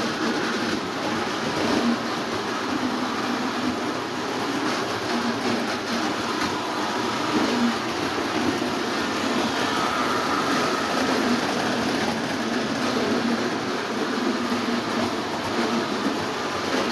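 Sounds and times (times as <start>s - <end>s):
toy trains rumbling on track: 0.0s - 16.9s.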